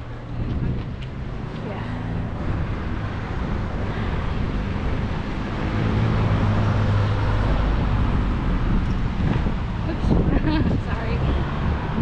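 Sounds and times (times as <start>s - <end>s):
rush of traffic noise: 0.0s - 12.0s
vehicle engine hum passing: 0.0s - 12.0s.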